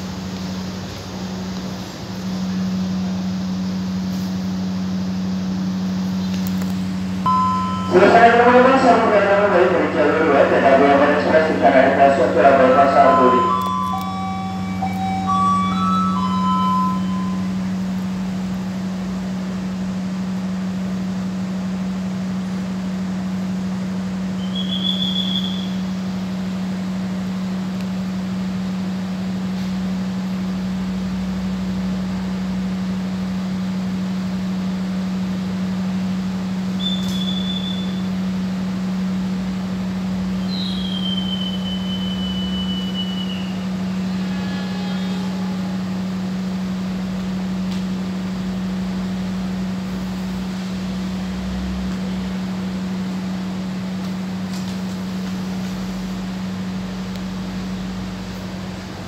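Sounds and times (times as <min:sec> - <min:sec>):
hiss of noise: 0:00.0 - 0:07.0
idling diesel low hum: 0:00.0 - 0:59.0
short high whistle tones: 0:13.0 - 0:17.6, 0:24.4 - 0:25.8, 0:36.8 - 0:38.1, 0:40.4 - 0:45.3.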